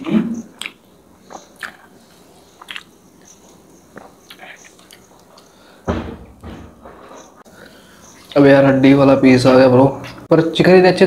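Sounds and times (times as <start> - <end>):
person chewing: 0.4 - 5.6
wet mouth clicks: 0.6 - 1.9, 2.6 - 5.5.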